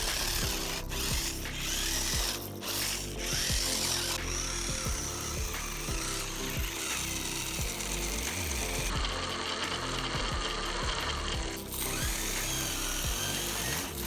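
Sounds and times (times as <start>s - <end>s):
background music: 0.0s - 14.0s
toy car motor buzzing: 0.0s - 14.0s.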